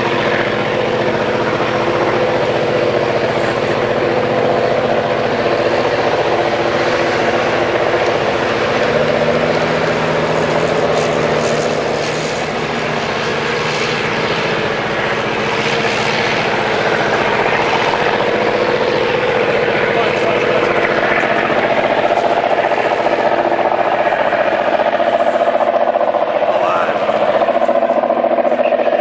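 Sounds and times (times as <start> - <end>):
diesel locomotive engines droning: 0.0 - 29.0.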